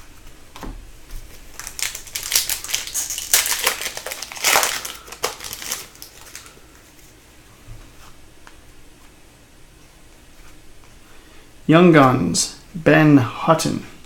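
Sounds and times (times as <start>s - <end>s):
foil wrapper tearing and crinkling: 1.5s - 6.5s.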